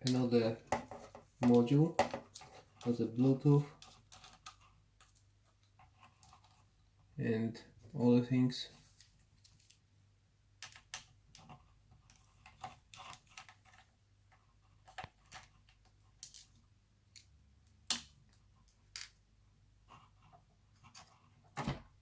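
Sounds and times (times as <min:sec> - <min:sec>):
small laptop parts clicking: 0:10.6 - 0:13.9.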